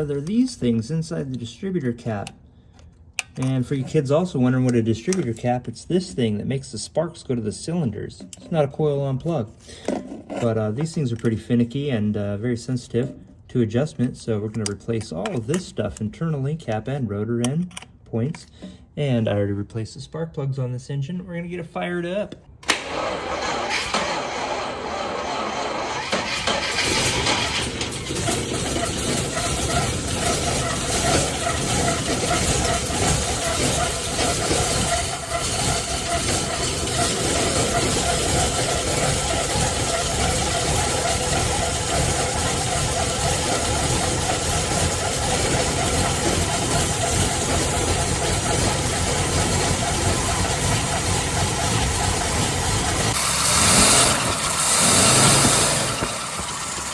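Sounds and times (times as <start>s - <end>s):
car engine running: 22.7s - 56.9s
drive belt squealing: 22.7s - 56.9s.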